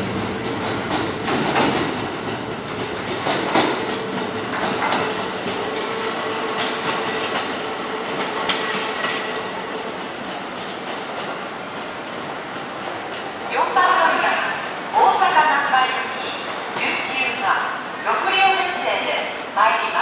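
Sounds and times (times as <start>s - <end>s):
train running rumble: 0.0s - 13.1s
train wheels clacking over rail joints: 0.5s - 9.3s.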